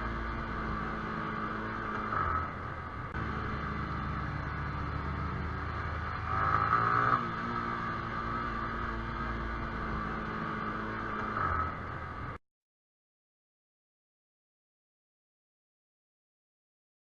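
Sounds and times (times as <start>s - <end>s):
motorcycle engine drone: 0.0s - 12.4s.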